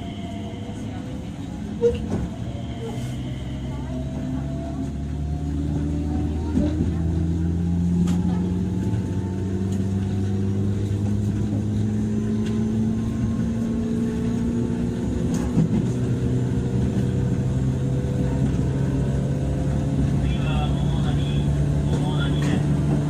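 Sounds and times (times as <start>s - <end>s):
electric train motors humming: 0.0s - 23.0s
wheels rumbling on rails: 0.0s - 23.0s.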